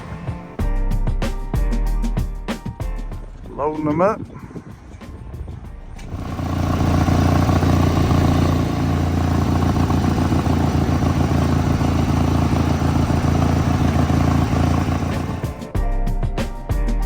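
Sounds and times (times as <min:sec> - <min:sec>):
garden tractor engine running: 0:06.0 - 0:15.6.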